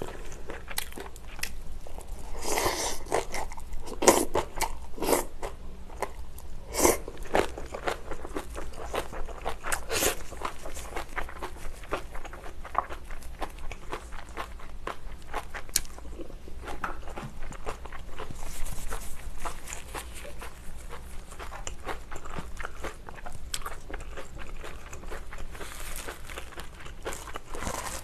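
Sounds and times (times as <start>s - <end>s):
crunchy chewing: 6.8s - 28.0s.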